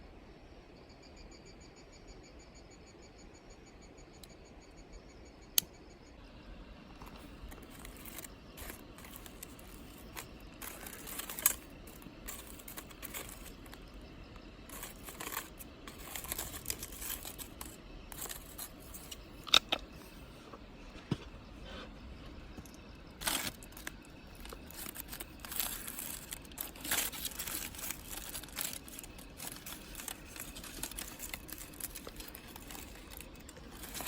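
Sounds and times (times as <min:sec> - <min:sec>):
crinkling and rustling: 0:06.9 - 0:34.0.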